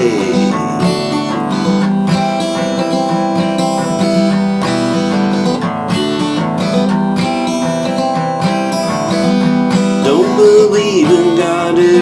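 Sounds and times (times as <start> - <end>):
person singing: 0.0 - 1.9, 10.0 - 12.0
acoustic guitar strumming chords: 0.0 - 12.0.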